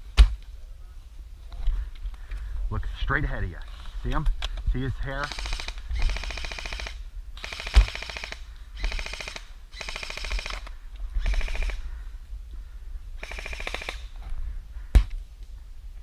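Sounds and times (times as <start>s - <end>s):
airsoft guns firing bursts: 5.2s - 11.8s, 13.2s - 14.1s.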